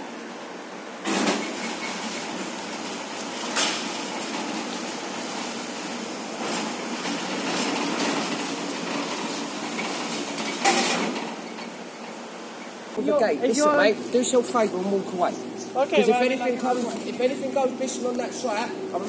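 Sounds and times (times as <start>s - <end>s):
electric train running past: 0.0s - 19.0s.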